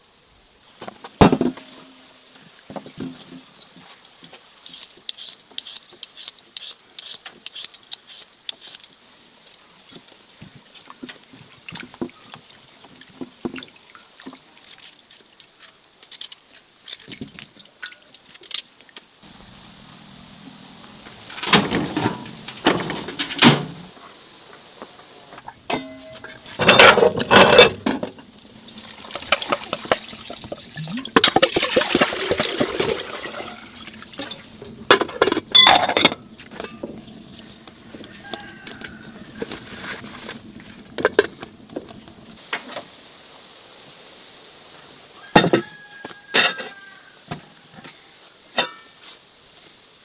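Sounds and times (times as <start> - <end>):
objects knocking and clattering: 0.8 - 2.0, 21.0 - 24.0, 25.3 - 42.3
water pouring and splashing: 10.4 - 23.8, 25.3 - 42.8.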